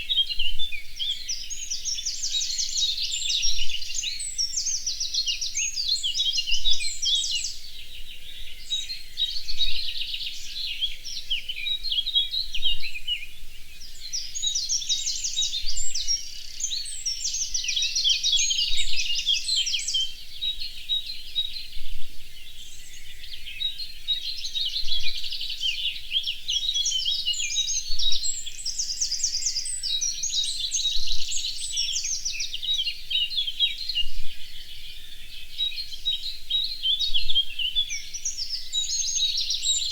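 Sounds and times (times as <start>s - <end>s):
songbirds trilling and chirping: 0.0s - 39.9s.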